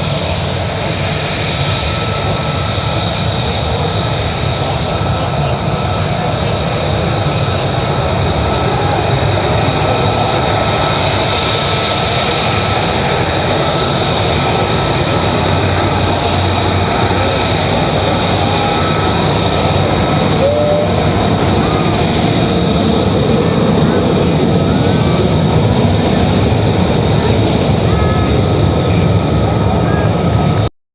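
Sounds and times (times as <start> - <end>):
jet engine whine and rumble: 0.0 - 30.7.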